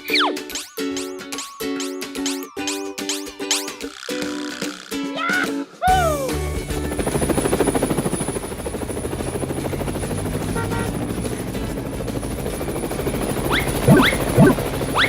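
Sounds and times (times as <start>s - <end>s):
cartoon helicopter rotor chopping: 6.8s - 15.0s.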